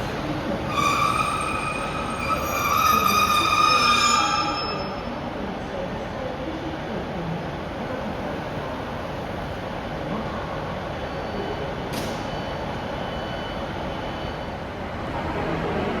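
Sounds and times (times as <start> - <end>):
train rumbling: 0.0 - 4.9.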